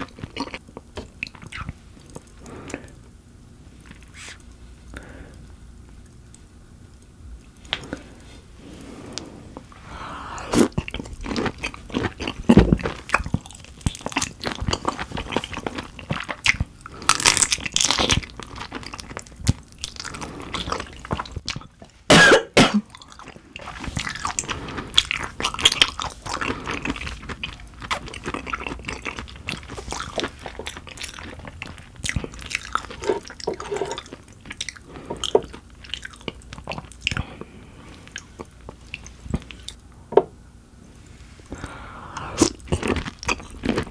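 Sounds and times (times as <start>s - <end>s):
wet chewing with small crunches: 0.0s - 3.1s, 10.6s - 22.1s, 22.8s - 39.8s, 41.5s - 43.9s.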